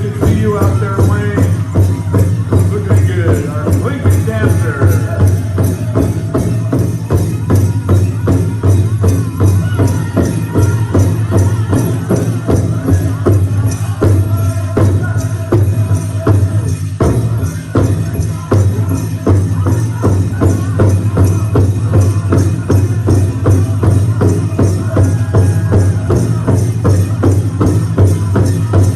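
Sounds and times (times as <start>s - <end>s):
large drum steady beat: 0.0s - 28.9s
people singing: 0.0s - 28.9s.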